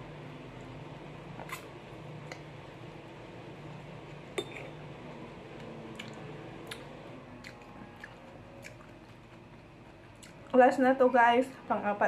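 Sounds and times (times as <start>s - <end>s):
wet chewing of orange: 5.6s - 10.6s.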